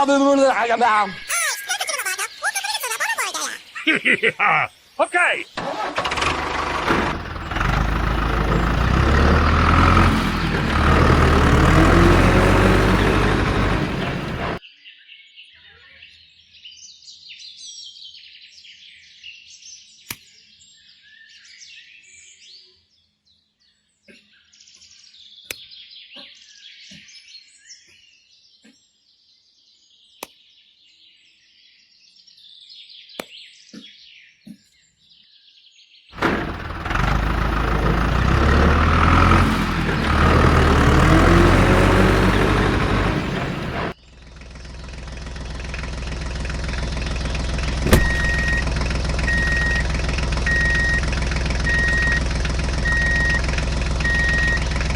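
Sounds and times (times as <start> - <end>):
birds chirping: 0.0 - 14.6, 36.2 - 44.0, 44.6 - 54.9
engine running loudly: 5.6 - 14.6, 36.2 - 54.9.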